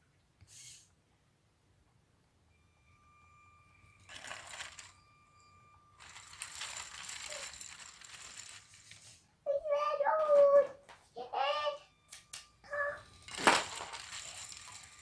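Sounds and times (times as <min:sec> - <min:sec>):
plastic gears and tracks rattling: 0:04.1 - 0:05.0, 0:06.0 - 0:09.2, 0:13.1 - 0:15.0.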